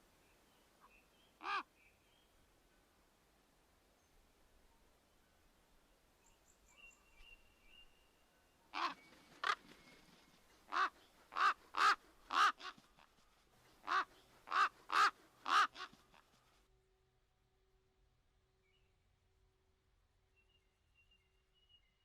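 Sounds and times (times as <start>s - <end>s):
raven cawing: 10.7s - 12.8s, 13.8s - 16.3s
faint high bird chirps: 20.3s - 22.0s.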